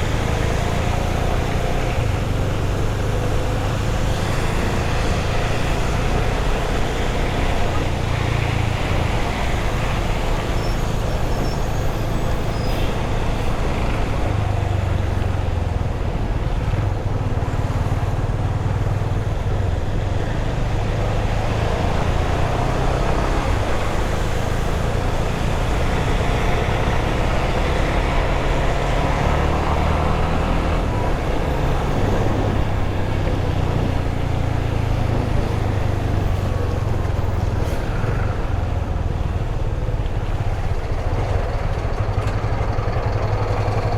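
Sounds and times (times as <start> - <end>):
wind and road noise: 0.0 - 43.9
motorcycle engine running: 13.7 - 43.9.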